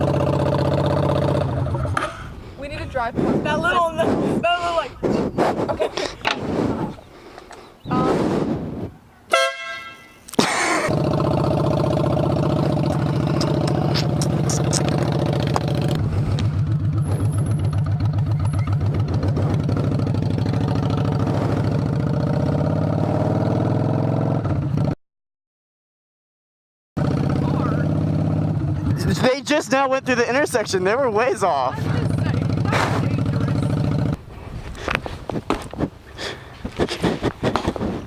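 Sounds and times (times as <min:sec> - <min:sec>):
motorcycle engine running: 0:00.0 - 0:02.3, 0:10.9 - 0:25.0, 0:27.0 - 0:29.4, 0:31.7 - 0:34.2
vehicle horn honking: 0:09.3 - 0:10.2.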